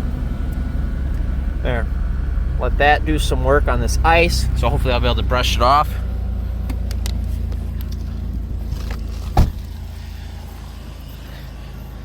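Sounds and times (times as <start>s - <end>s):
minivan engine idling: 0.0s - 12.0s
sharp thump: 9.2s - 9.8s.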